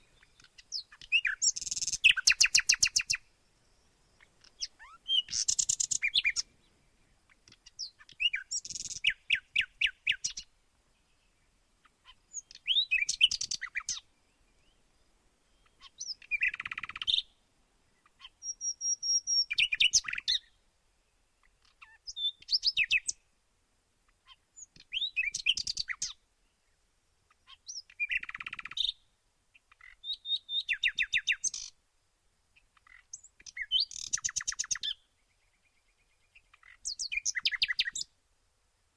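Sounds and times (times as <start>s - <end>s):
songbird trilling and whistling: 0.1s - 3.2s, 4.4s - 6.5s, 7.6s - 10.5s, 12.3s - 14.0s, 15.6s - 17.3s, 18.2s - 20.6s, 21.6s - 23.2s, 24.6s - 26.2s, 27.5s - 29.0s, 29.8s - 31.7s, 32.8s - 35.0s, 36.4s - 38.1s.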